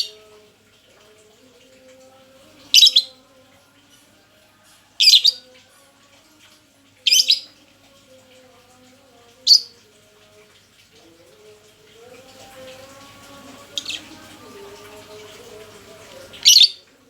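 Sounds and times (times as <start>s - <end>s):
bird chirping: 5.0s - 5.5s, 13.7s - 14.2s, 16.4s - 16.8s.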